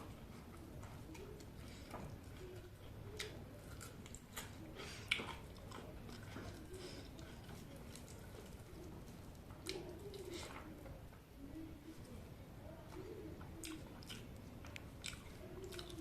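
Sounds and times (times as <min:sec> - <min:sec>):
person chewing chicken: 0:00.4 - 0:10.6, 0:13.6 - 0:16.0.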